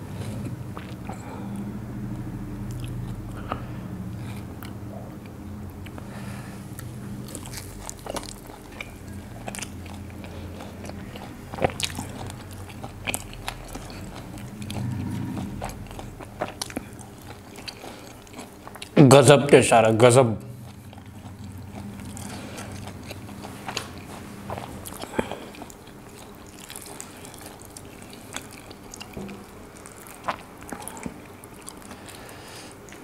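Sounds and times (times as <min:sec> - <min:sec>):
chewing with wet mouth noises: 0:00.0 - 0:01.8, 0:02.6 - 0:33.0.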